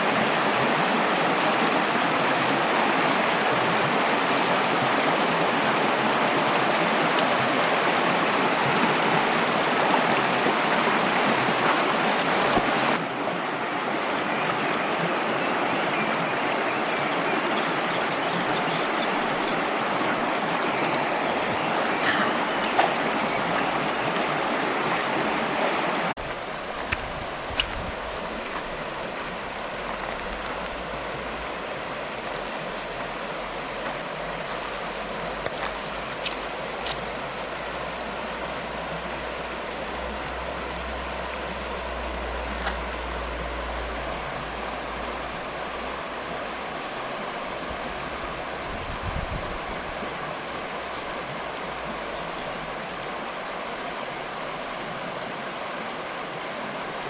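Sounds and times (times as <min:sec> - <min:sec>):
stream rushing over rocks: 0:00.0 - 0:57.0
thin high tone: 0:26.2 - 0:50.0.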